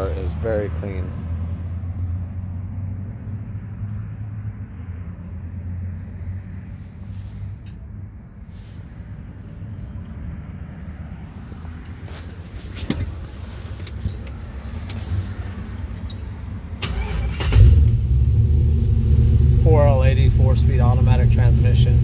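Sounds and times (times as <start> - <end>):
keys jangling: 12.9 - 16.3
car engine running loudly: 17.5 - 22.0.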